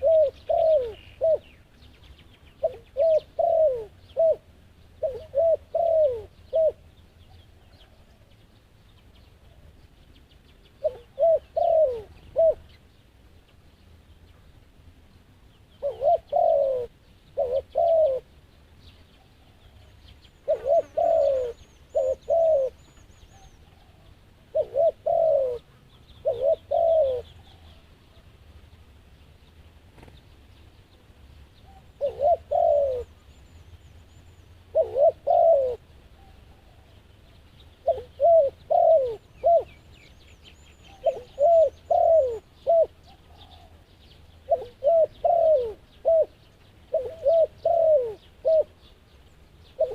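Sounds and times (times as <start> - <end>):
doves cooing: 0.0 - 1.6, 2.6 - 6.9, 10.8 - 12.8, 15.8 - 18.3, 19.2 - 28.3, 31.6 - 33.3, 34.5 - 37.1, 37.8 - 40.2, 40.8 - 48.9
small birds chirping: 0.0 - 49.9.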